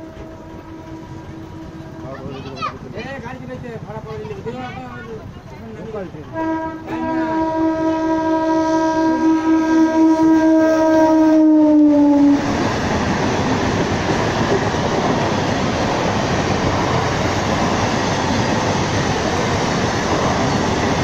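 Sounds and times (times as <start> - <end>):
train horn: 0.0 - 2.4, 6.3 - 12.6
train wheels rumbling on track: 0.0 - 21.0.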